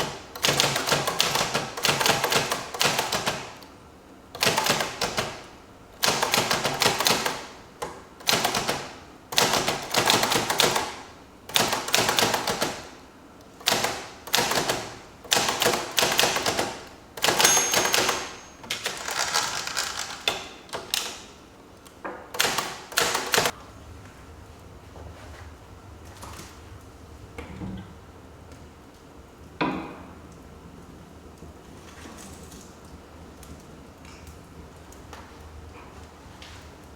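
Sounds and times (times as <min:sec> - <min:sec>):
typewriter typing: 0:00.0 - 0:03.7, 0:04.3 - 0:13.0, 0:13.6 - 0:21.3, 0:22.3 - 0:23.6.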